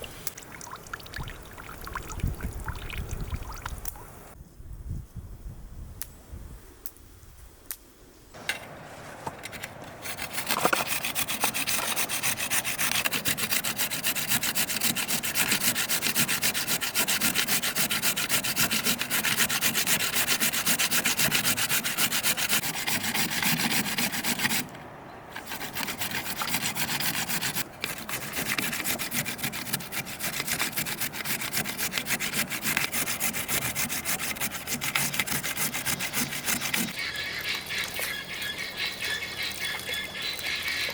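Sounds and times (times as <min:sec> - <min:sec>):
rapid rubbing strokes: 0:25.4 - 0:40.9.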